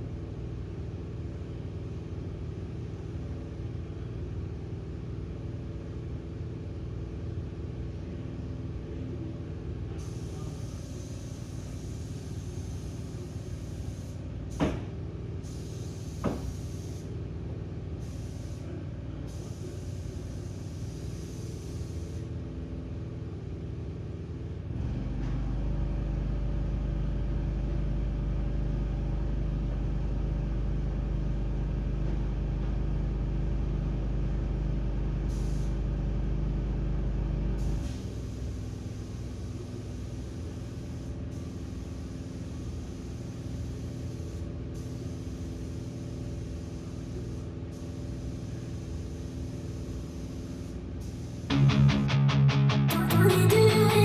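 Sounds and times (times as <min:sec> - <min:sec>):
hiss: 0:10.0 - 0:17.1, 0:18.0 - 0:18.7, 0:19.3 - 0:22.3, 0:35.3 - 0:35.8, 0:37.6 - 0:51.5
low mechanical drone: 0:51.2 - 0:54.0.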